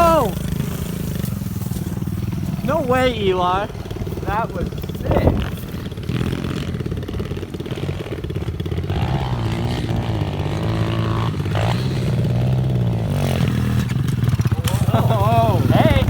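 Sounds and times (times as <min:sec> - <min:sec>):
pit bike engine revving: 0:00.0 - 0:16.0.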